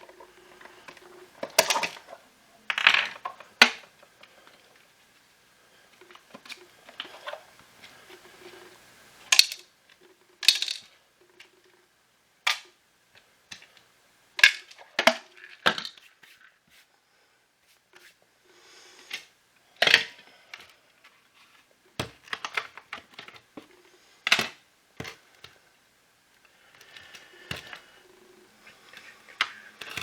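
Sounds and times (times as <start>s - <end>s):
fumbling with parts: 0.0s - 4.8s, 26.7s - 30.0s
plastic parts clicking and clattering: 0.0s - 4.8s, 5.9s - 8.3s, 9.2s - 11.8s, 12.4s - 12.8s, 19.1s - 21.2s, 21.9s - 25.6s, 26.4s - 27.9s, 28.9s - 30.0s.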